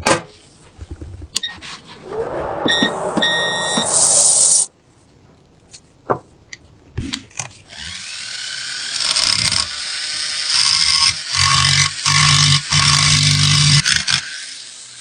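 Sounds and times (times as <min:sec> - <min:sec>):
loud burst of noise: 0:01.8 - 0:04.7.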